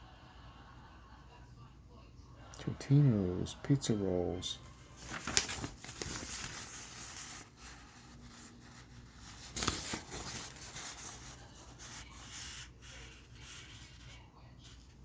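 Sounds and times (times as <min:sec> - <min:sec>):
paper crinkle: 0:04.6 - 0:15.0
paper rustling: 0:04.6 - 0:15.0.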